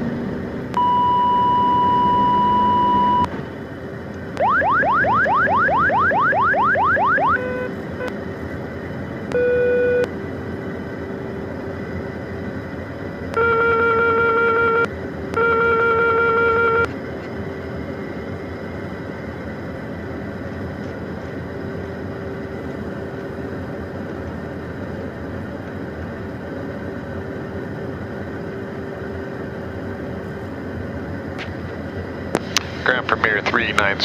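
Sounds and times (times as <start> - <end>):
cockpit hum: 0.0 - 34.0
long electronic alert tones: 0.8 - 3.3, 4.4 - 7.7, 9.4 - 10.1, 13.4 - 16.9.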